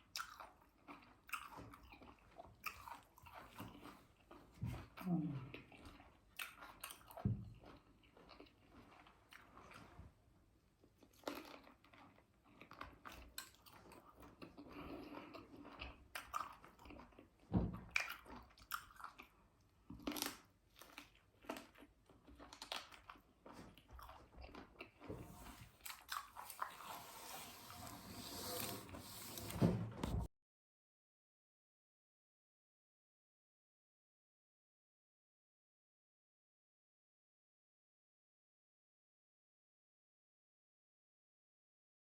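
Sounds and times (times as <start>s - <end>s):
person chewing crunchy food: 0.0s - 4.5s, 5.4s - 9.8s, 10.9s - 27.8s.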